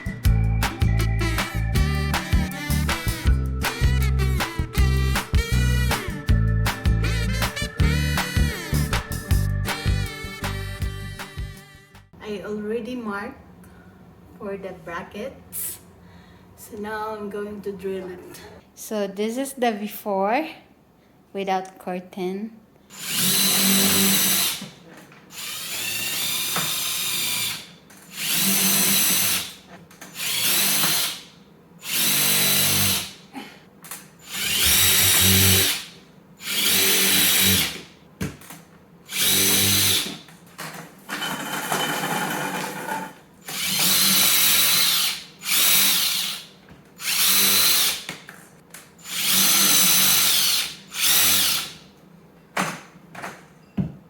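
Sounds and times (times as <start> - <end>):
power drill whining: 22.9 - 24.6, 25.3 - 29.5, 30.2 - 31.2, 31.9 - 33.1, 34.2 - 35.8, 36.4 - 37.8, 39.1 - 40.1, 41.2 - 46.4, 47.0 - 48.0, 49.0 - 51.7.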